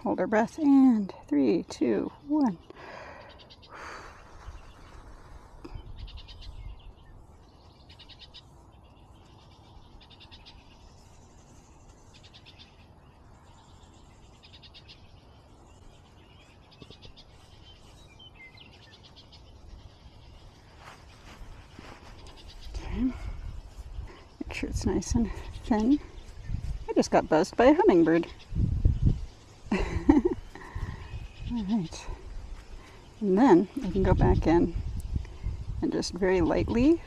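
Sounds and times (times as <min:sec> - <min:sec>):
wind rumble on microphone: 0:04.2 - 0:07.9, 0:15.0 - 0:37.0.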